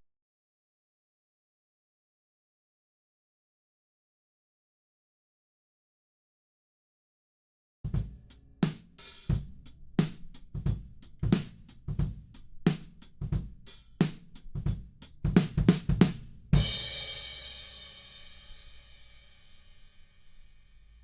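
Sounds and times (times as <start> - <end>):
drum kit groove: 7.9 - 19.2.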